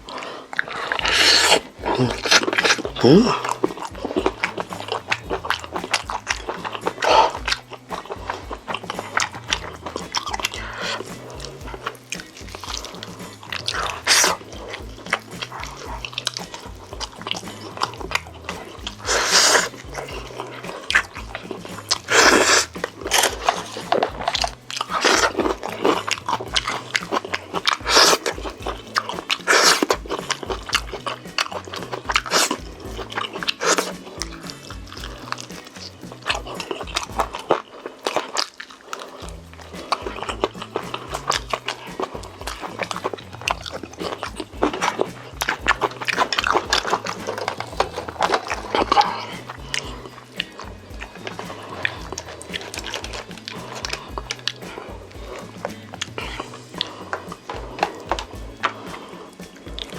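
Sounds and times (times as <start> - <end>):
chewing and biting food: 0.0 - 59.9.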